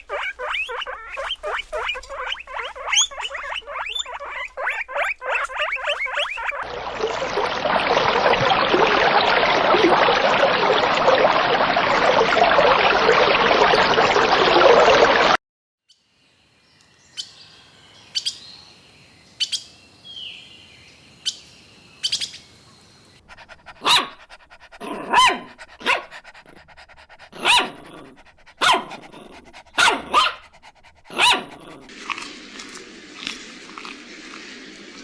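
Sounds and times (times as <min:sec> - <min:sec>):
short chirping calls: 0:00.0 - 0:06.6, 0:16.7 - 0:22.9
dog barking: 0:23.8 - 0:24.2, 0:24.8 - 0:26.1, 0:27.4 - 0:27.8, 0:28.6 - 0:28.9, 0:29.8 - 0:30.5, 0:31.1 - 0:31.6.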